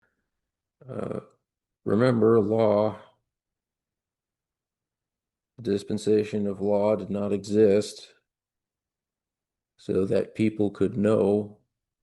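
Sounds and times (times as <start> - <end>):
man speaking: 0.8 - 3.2, 5.6 - 8.2, 9.8 - 11.6.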